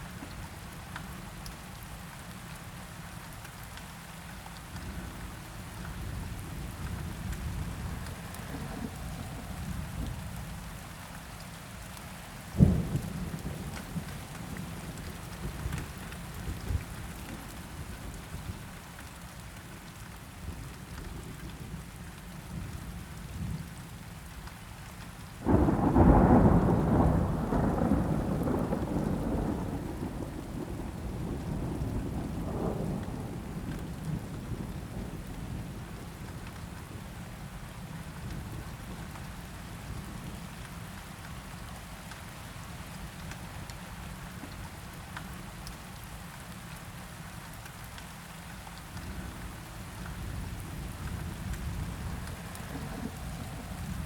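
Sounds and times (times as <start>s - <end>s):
steady rain: 0.0s - 54.0s
thunder rumbling: 25.4s - 36.1s, 50.2s - 54.0s
sharp thunderclap: 25.5s - 30.8s.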